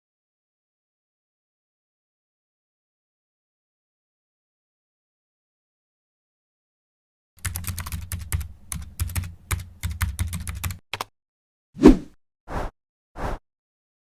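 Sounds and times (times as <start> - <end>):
rapid sharp clicks: 7.4 - 11.1.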